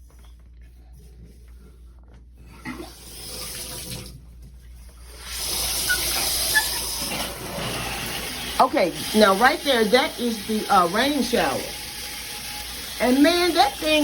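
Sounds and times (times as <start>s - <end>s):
shower water spraying: 2.9s - 4.2s, 5.0s - 14.0s.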